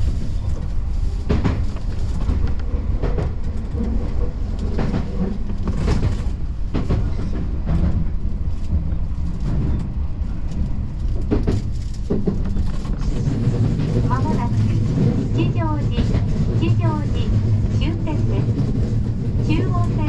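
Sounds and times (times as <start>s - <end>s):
train rumbling: 0.0s - 20.0s
wheels clacking over rail joints: 1.1s - 9.9s.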